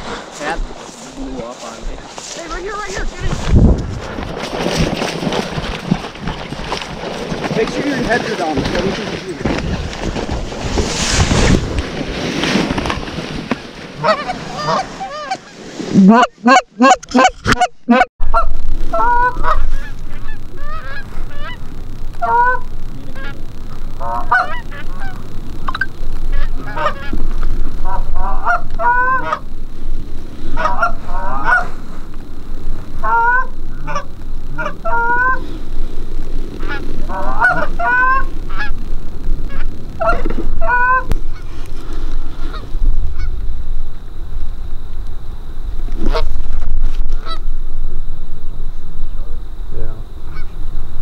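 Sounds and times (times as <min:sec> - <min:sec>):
geese honking: 0:13.5 - 0:35.9, 0:36.5 - 0:43.4, 0:47.2 - 0:47.5, 0:50.3 - 0:50.6.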